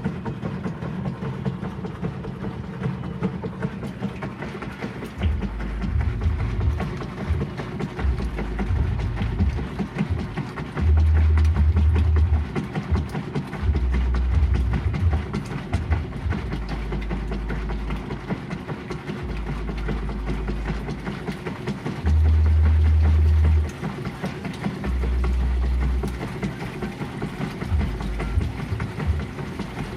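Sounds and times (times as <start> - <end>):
washing machine motor hum: 0.0 - 29.9.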